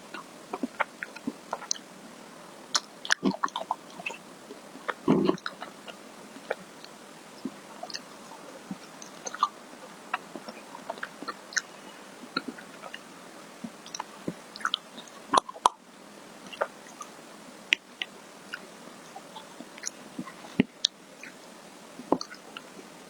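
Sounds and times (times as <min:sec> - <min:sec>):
mouth eating sounds: 0:02.7 - 0:13.1.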